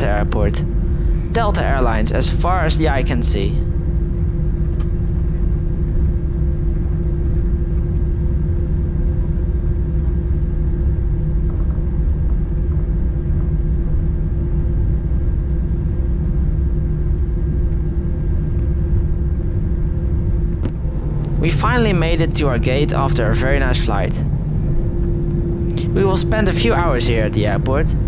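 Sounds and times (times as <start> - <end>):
airplane cabin rumble: 0.0 - 4.2, 20.5 - 28.0
constant hum: 0.0 - 4.4, 20.5 - 28.0.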